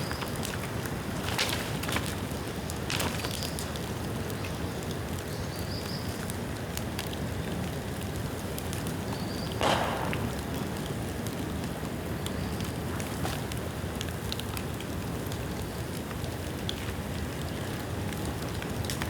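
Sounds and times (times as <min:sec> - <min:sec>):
bamboo bonfire crackling: 0:00.0 - 0:05.5, 0:06.1 - 0:19.0
loud pop: 0:09.6 - 0:11.5.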